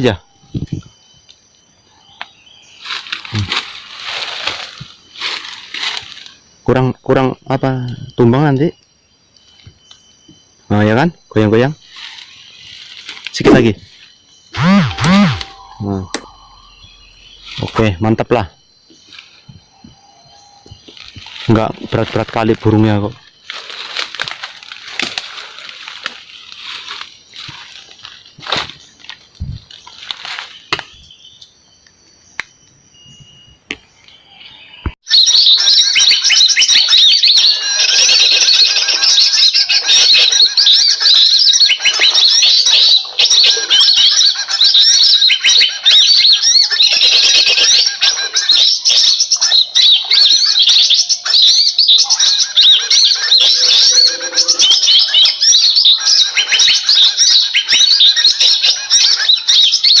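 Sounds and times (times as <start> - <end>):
recorded bird calls from speaker: 0.0 - 3.6, 6.6 - 23.4, 33.0 - 60.0.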